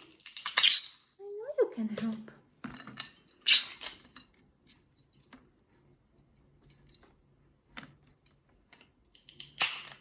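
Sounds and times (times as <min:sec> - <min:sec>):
beak clicking on nut shells: 0:09.1 - 0:10.0.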